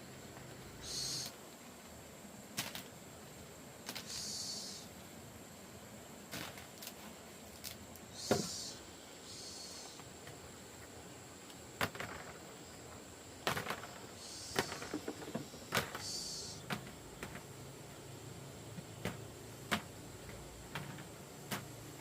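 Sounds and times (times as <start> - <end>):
rustling and scraping: 6.3 - 8.6.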